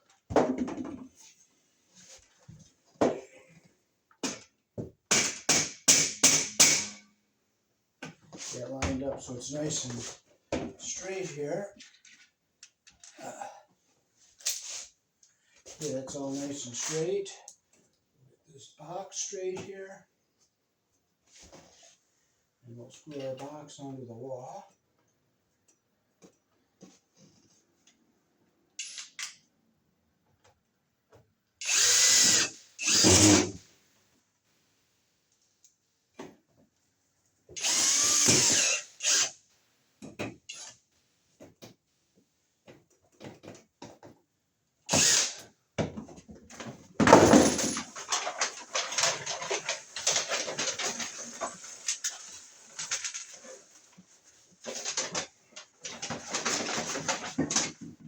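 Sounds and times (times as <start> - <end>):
power drill driving screws: 31.6 - 33.6, 37.6 - 39.4, 40.5 - 40.7, 44.9 - 45.4.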